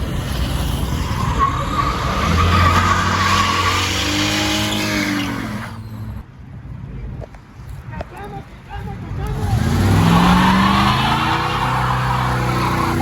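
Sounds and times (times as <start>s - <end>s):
tyres squealing: 0.9s - 6.2s, 9.6s - 13.0s.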